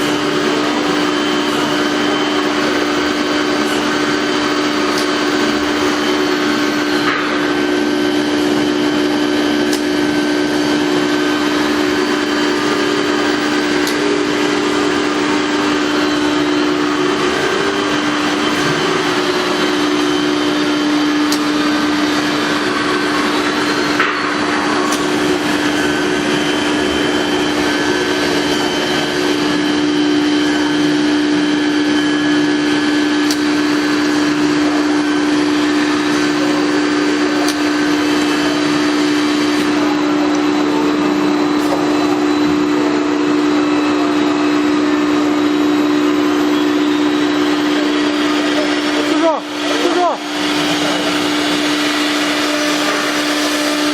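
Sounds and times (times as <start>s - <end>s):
router spindle hum: 0.0s - 53.9s
machine noise rush: 10.0s - 40.2s.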